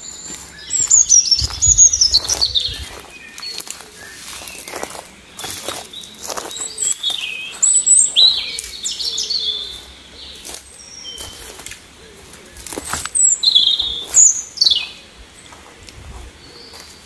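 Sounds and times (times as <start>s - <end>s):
songbird whistled notes: 0.0s - 9.8s
footsteps on dry twigs: 0.0s - 17.0s.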